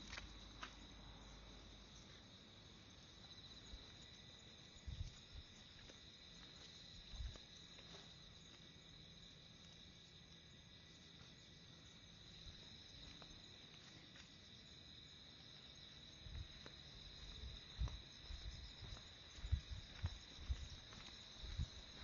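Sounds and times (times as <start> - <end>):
chirring insects: 0.0 - 22.0.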